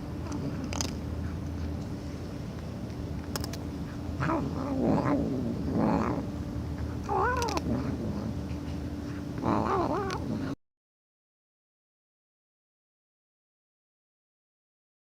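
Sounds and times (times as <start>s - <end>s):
cat making odd vocal calls: 7.1s - 8.3s, 9.4s - 10.5s.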